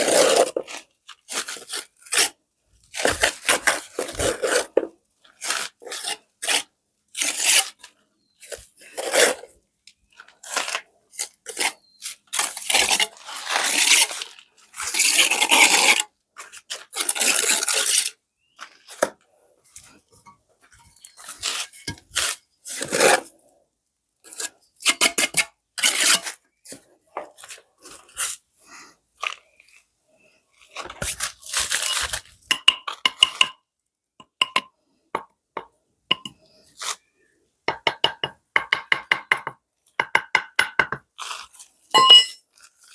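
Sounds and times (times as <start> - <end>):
rough scraping: 0.0 - 2.3, 2.9 - 6.6, 7.2 - 9.5, 10.2 - 18.1, 30.6 - 32.4.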